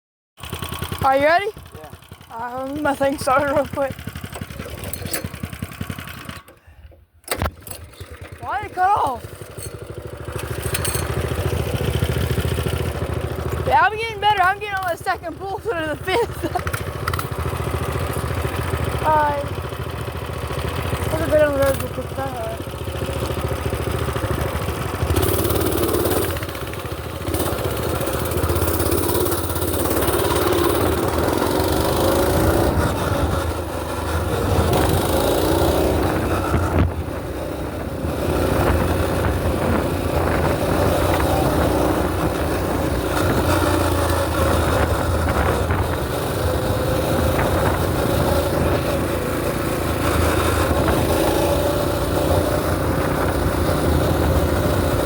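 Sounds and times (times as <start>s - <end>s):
mini bike engine revving: 0.4s - 55.0s.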